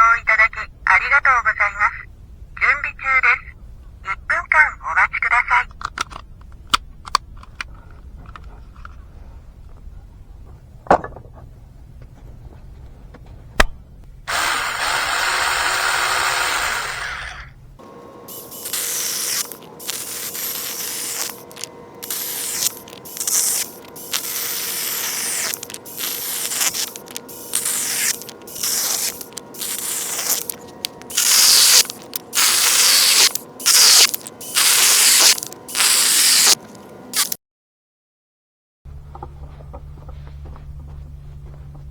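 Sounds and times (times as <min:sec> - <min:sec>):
saw cutting firewood: 0:14.3 - 0:17.6, 0:18.3 - 0:37.4.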